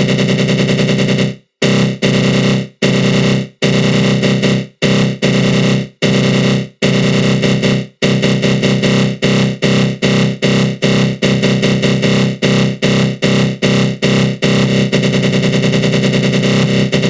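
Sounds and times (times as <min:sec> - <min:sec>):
harsh buzzing synth growl: 0:14.6 - 0:17.0.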